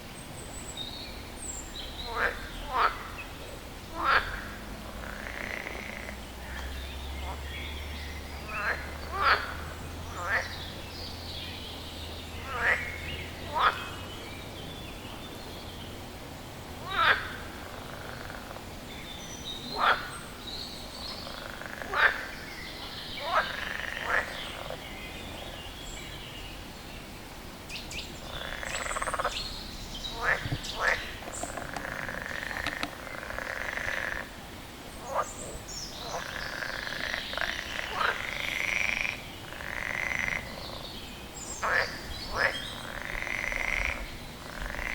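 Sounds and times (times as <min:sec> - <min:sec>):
faint frog chorus: 0:00.6 - 0:27.1, 0:27.7 - 0:44.9
frog croaking: 0:02.0 - 0:10.8, 0:12.4 - 0:14.1, 0:16.8 - 0:18.7, 0:19.7 - 0:20.2, 0:21.1 - 0:25.6, 0:28.2 - 0:34.4, 0:35.0 - 0:44.9.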